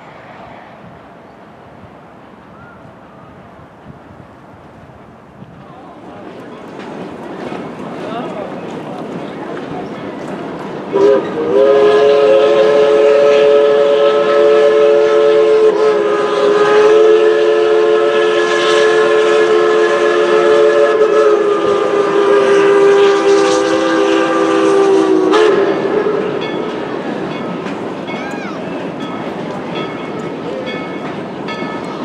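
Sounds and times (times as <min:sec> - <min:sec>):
steam locomotive chime whistle: 0:10.9 - 0:32.0.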